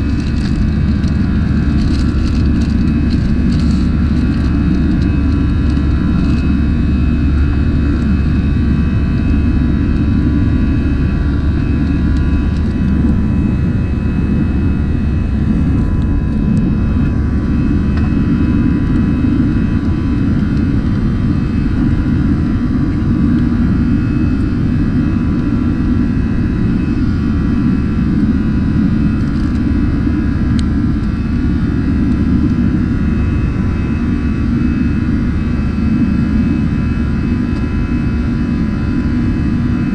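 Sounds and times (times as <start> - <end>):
faint steady whines: 0.0 - 39.9
jet engines and rushing air: 0.0 - 39.9.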